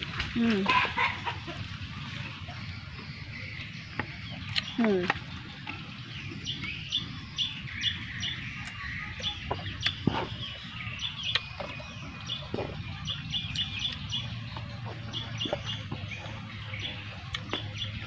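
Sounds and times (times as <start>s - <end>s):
birds chirping: 0.0s - 18.0s
clicks and taps of food eaten: 11.3s - 17.8s.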